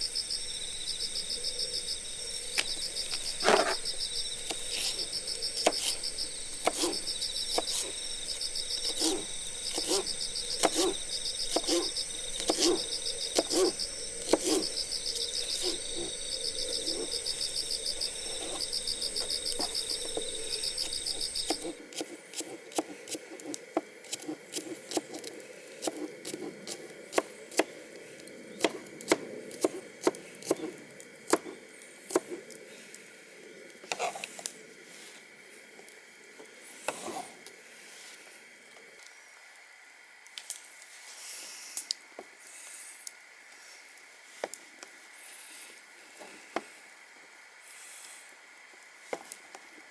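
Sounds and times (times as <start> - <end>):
insects chirping: 0.0 - 21.8
campfire crackling: 0.0 - 22.0.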